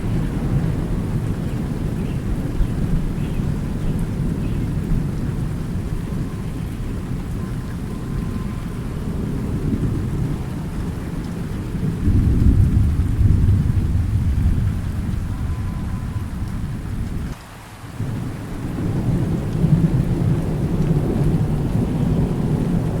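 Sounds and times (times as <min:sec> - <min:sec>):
thunder rumbling: 0:00.0 - 0:17.4, 0:18.0 - 0:23.0
steady rain: 0:00.0 - 0:23.0.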